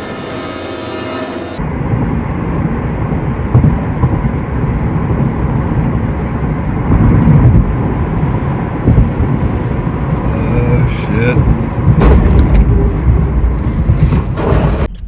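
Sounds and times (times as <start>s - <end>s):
vehicle rumble: 0.0s - 15.0s
road and wind noise: 1.5s - 15.0s.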